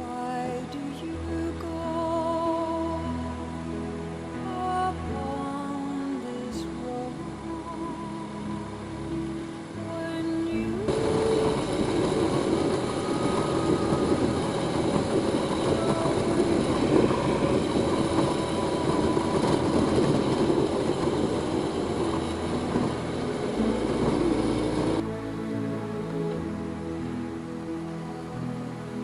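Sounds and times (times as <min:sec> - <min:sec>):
wind noise: 0:08.7 - 0:27.7.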